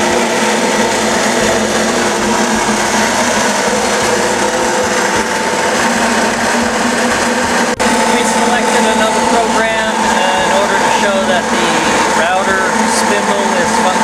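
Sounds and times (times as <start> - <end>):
cnc machine whining and cutting: 0.0 - 14.0.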